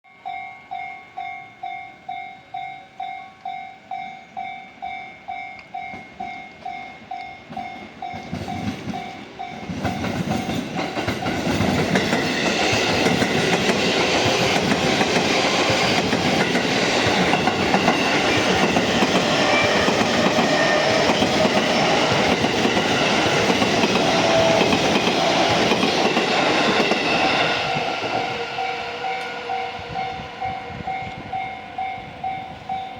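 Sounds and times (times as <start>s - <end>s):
crossing warning bell pulsing: 0.1s - 32.9s
train wheels clacking: 5.5s - 32.9s.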